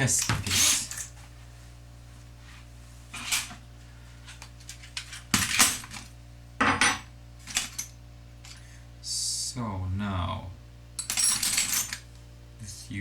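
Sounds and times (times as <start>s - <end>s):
steady low hum: 0.0s - 13.0s
small metal hardware clinking: 11.0s - 12.0s.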